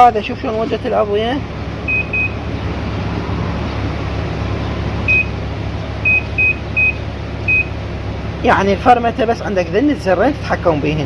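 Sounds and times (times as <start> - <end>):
steady low hum: 0.0 - 11.0
washing machine short high beeps: 1.9 - 2.4, 5.1 - 5.4, 6.0 - 7.8.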